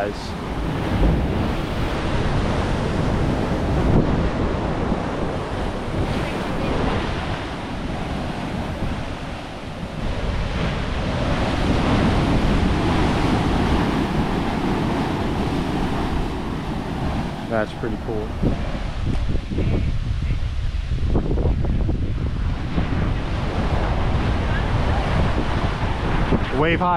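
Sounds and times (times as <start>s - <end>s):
surf breaking on rocks: 0.0s - 19.4s
wind buffeting microphone: 0.0s - 26.9s.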